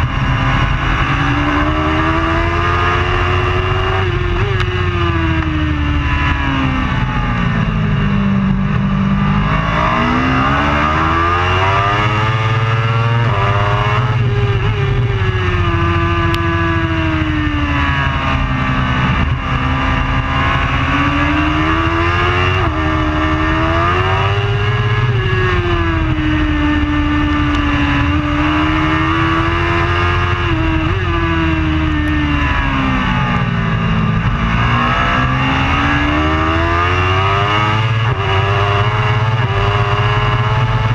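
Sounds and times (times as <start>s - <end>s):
superbike engine at racing revs: 0.0s - 40.9s.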